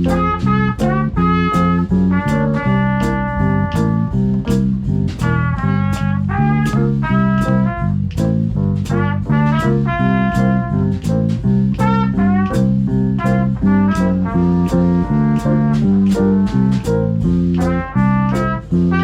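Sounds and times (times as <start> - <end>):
drum strikes: 0.0 - 19.0
swing band playing: 0.0 - 19.0.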